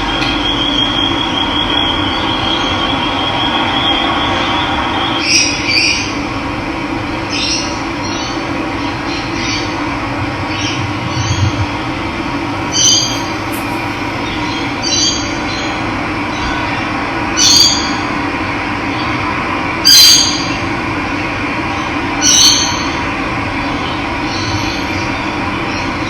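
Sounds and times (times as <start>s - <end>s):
bird short call: 12.6s - 15.1s.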